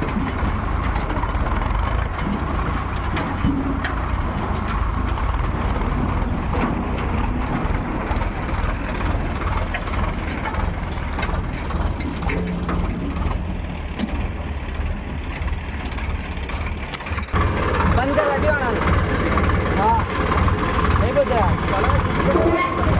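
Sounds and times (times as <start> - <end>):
diesel machinery engines droning: 0.0 - 22.9
metal knocks and clanks: 0.0 - 22.9.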